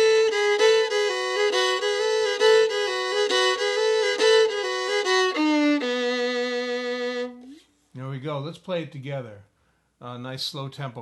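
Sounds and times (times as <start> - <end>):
solo fiddle playing bluegrass: 0.0 - 7.6.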